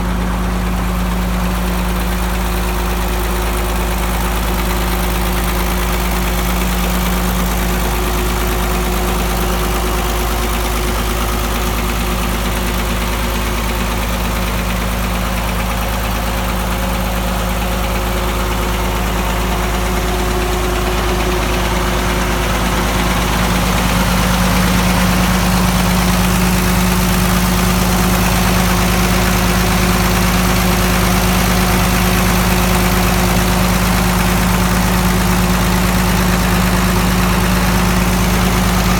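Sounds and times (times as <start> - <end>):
tractor engine idling: 0.0 - 38.9.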